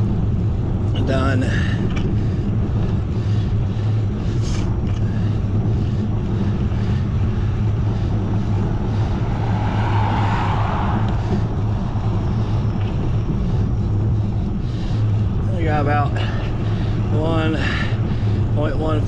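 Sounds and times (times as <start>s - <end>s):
road noise: 0.0s - 19.0s
wind rushing over microphone: 0.0s - 19.0s.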